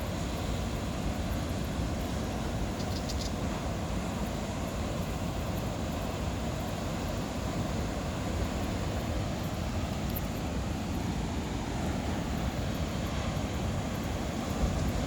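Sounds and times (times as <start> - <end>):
faint high ticks: 2.8 - 3.4, 10.0 - 10.3
gusty wind buffeting microphone: 10.5 - 15.0.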